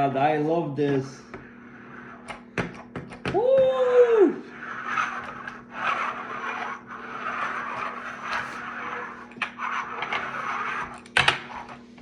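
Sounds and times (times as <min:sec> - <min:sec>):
plastic toy parts scraping: 0:04.6 - 0:11.8.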